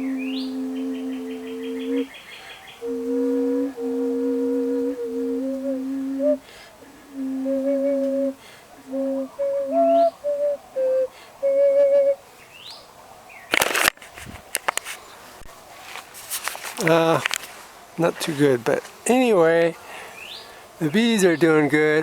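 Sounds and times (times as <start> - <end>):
double vessel flute playing: 0.0 - 2.2, 2.8 - 12.2
faint bird chirps: 0.0 - 3.8
clicking handling noise: 13.5 - 15.0, 15.9 - 17.5.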